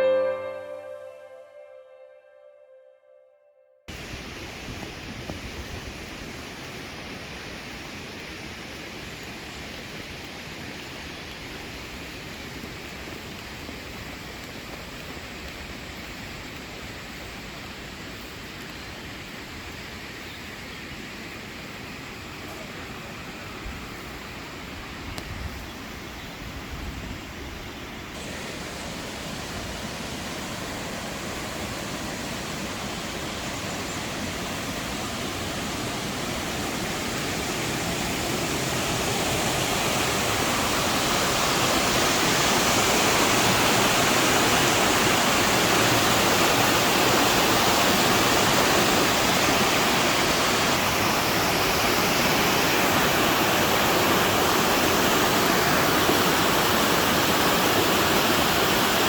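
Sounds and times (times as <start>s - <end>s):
waterfall rushing: 0.0s - 1.3s, 28.2s - 59.0s.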